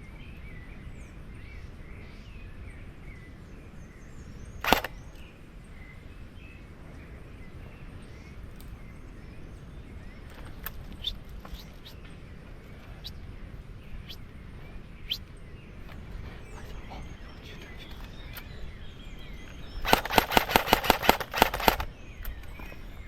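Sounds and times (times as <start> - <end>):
faint bird chirps: 0.0 - 23.0
steady low rumble: 0.5 - 23.0
airsoft gun shot: 4.6 - 5.0, 19.8 - 21.9
small clicks: 4.6 - 5.3, 10.3 - 12.0, 19.4 - 22.9.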